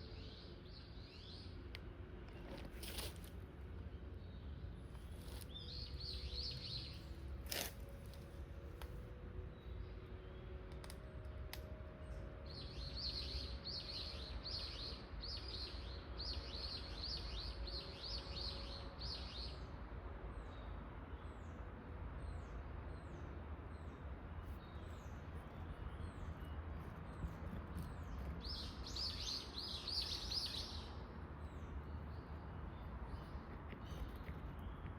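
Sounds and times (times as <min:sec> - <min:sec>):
small bird chirping: 0:24.7 - 0:34.9.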